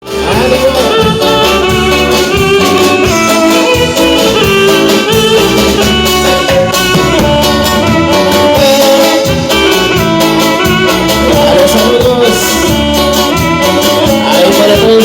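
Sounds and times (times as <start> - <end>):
band music with horns: 0.0 - 15.0
steady beat: 0.0 - 15.0.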